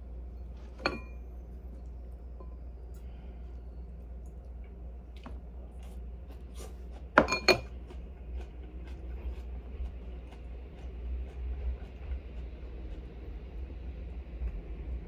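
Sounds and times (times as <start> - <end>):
tableware clinking: 0.8 - 1.2, 7.2 - 7.7.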